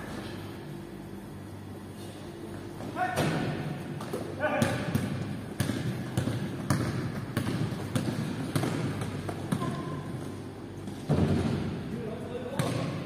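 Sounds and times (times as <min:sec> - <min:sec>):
basketball bouncing on gym floor: 0:03.2 - 0:10.4, 0:12.5 - 0:13.0.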